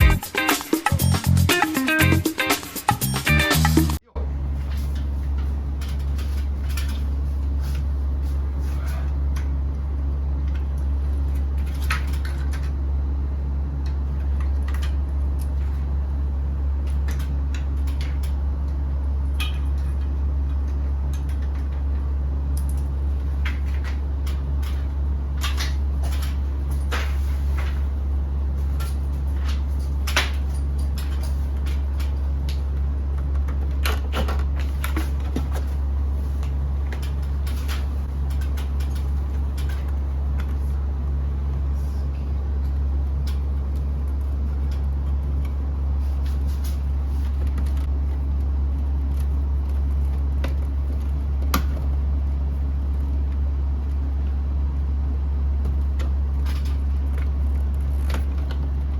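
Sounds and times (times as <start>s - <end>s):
steady low hum: 4.0s - 58.9s
clicks and knocks of parts: 16.8s - 27.9s, 28.6s - 35.8s, 36.4s - 40.6s.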